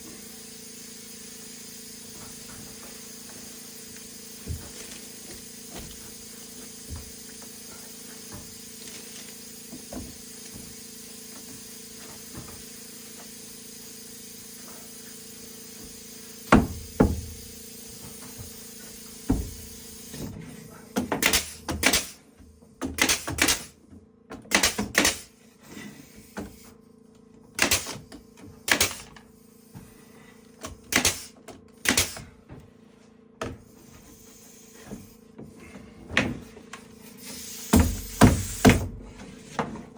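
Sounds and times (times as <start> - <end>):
hammer knocking on wood: 16.5 - 17.4, 37.7 - 39.9.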